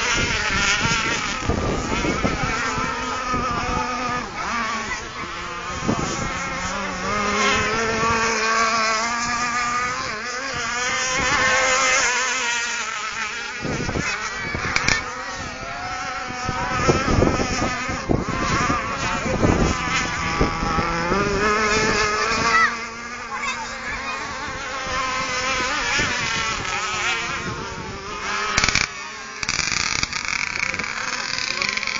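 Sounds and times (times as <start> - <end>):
model boat motors whining: 0.0 - 31.9
loud burst of noise: 28.6 - 31.9.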